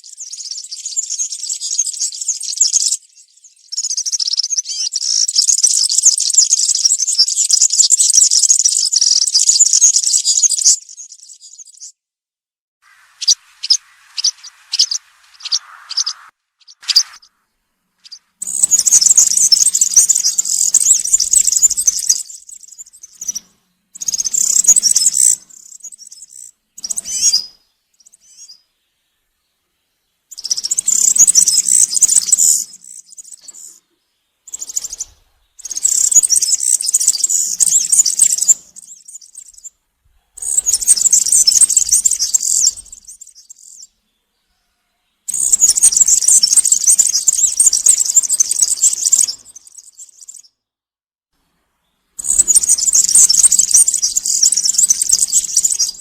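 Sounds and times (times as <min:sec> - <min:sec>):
bird jingling song: 0:00.0 - 0:12.0, 0:12.9 - 0:17.4, 0:18.0 - 0:28.6, 0:30.3 - 0:33.8, 0:34.5 - 0:39.7, 0:40.4 - 0:44.0, 0:45.3 - 0:50.5, 0:52.2 - 0:56.0
short bird chirps: 0:12.8 - 0:28.7, 0:30.3 - 0:39.7, 0:40.3 - 0:50.6, 0:51.8 - 0:56.0.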